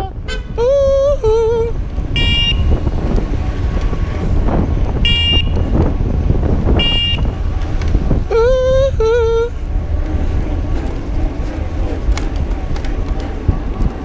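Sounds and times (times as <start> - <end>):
wavering vocal call: 0.0 - 1.8, 8.3 - 9.6
street traffic rumble: 0.0 - 14.0
wind: 0.0 - 14.0
high-pitched horn beeps: 2.2 - 2.8, 5.0 - 5.7, 6.8 - 7.3.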